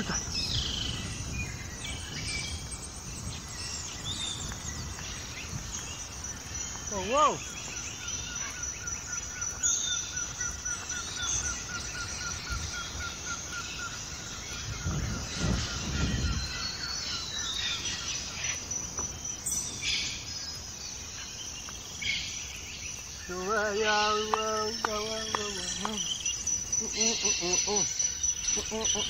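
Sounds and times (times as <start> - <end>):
high insect buzz: 0.0 - 29.0
man's voice holding a note: 23.3 - 26.1.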